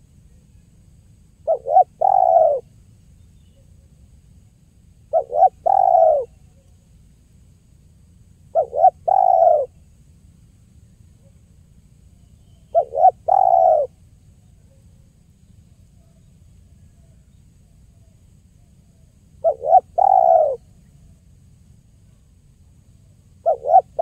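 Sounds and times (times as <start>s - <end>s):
dove cooing: 1.4s - 2.7s, 5.1s - 6.4s, 8.5s - 9.8s, 12.7s - 14.0s, 19.4s - 20.6s, 23.4s - 24.0s.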